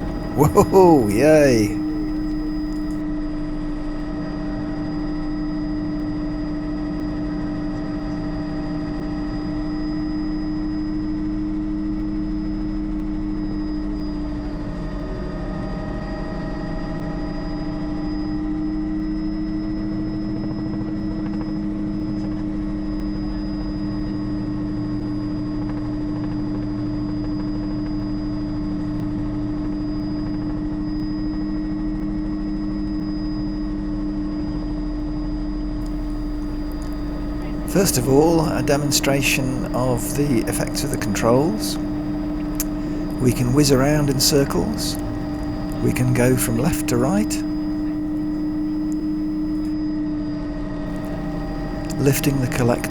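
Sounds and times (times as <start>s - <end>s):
helicopter rotor and engine drone: 20.4s - 23.2s.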